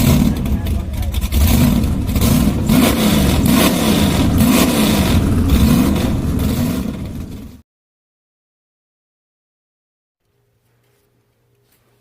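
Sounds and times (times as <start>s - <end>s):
car engine revving: 0.0s - 7.6s.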